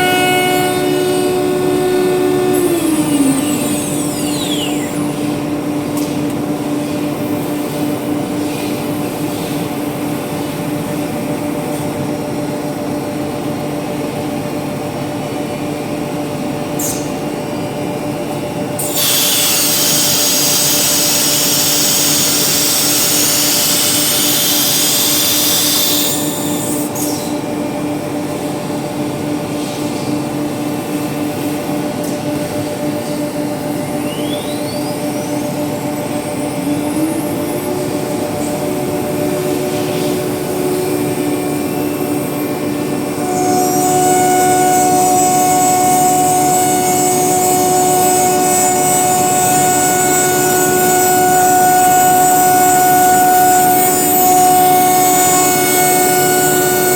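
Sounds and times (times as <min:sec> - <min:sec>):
router spindle whine: 0:00.0 - 0:06.2, 0:18.8 - 0:27.5, 0:33.0 - 0:56.9.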